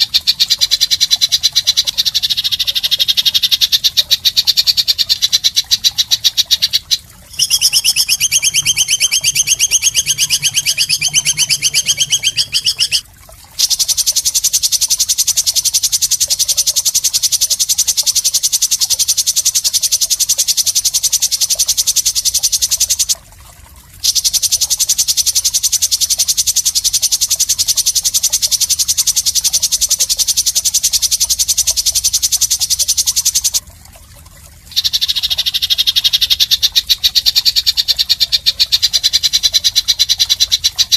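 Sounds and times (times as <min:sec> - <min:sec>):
bird buzzing trill: 0:06.0 - 0:13.0.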